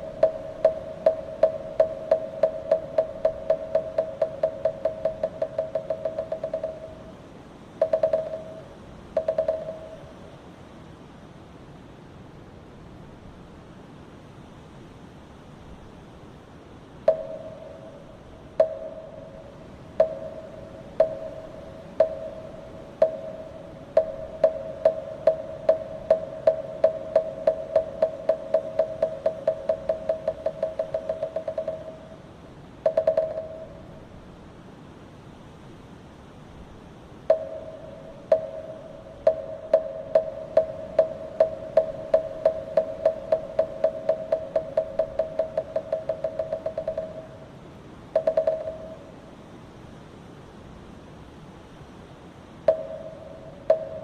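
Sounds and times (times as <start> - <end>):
wooden fish knocking: 0.0 - 7.1, 7.8 - 8.6, 9.2 - 10.0, 20.0 - 32.0, 32.9 - 33.7, 37.3 - 47.3, 48.2 - 49.0.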